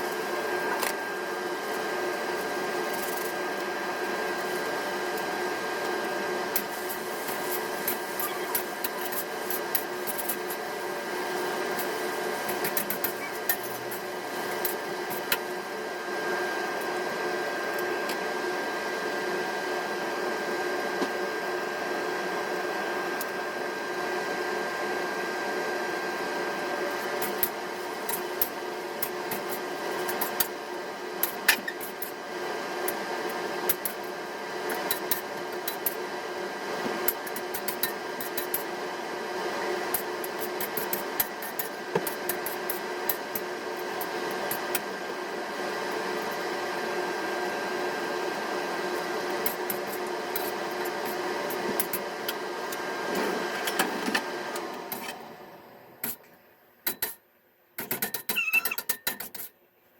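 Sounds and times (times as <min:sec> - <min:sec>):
small motor humming: 0:06.5 - 0:15.4.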